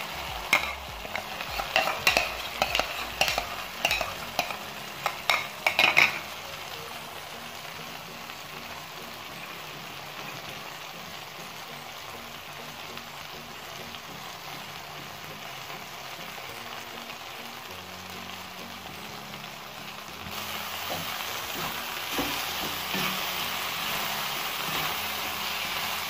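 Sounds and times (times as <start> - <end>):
spatula stirring: 0.0 - 6.2
egg and vegetables sizzling: 0.0 - 26.0.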